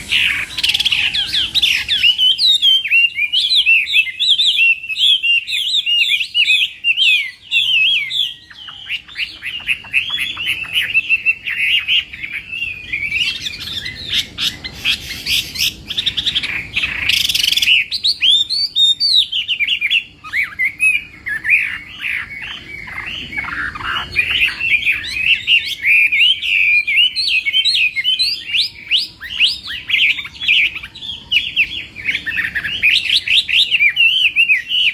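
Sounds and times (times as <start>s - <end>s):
loud noisy burst: 0.0s - 2.4s
bird singing whistled phrases: 0.0s - 34.9s.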